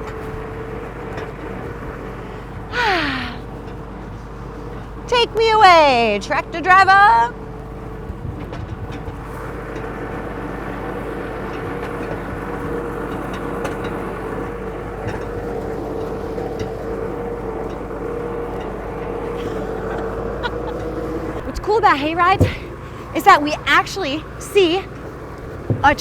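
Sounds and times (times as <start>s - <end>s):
tractor engine droning: 0.0s - 26.0s.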